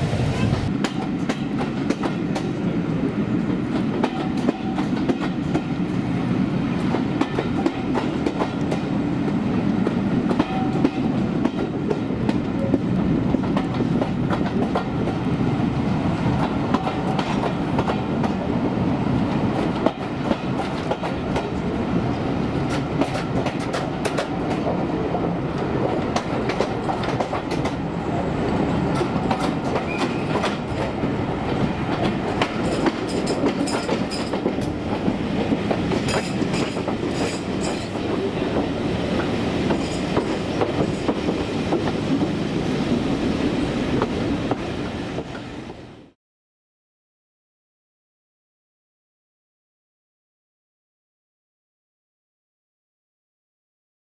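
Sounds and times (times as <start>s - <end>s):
train wheels rumbling: 0.0s - 45.9s
wheels clacking over rail joints: 28.8s - 42.4s.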